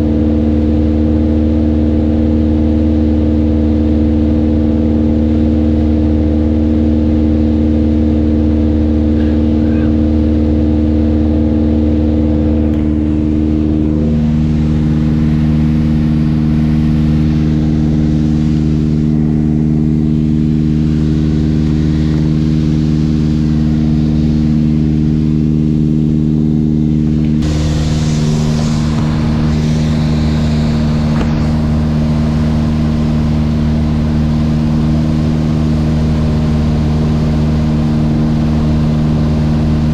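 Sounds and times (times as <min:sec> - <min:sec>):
aircraft engine and propeller drone: 0:00.0 - 0:39.9
bright hiss: 0:27.4 - 0:33.5.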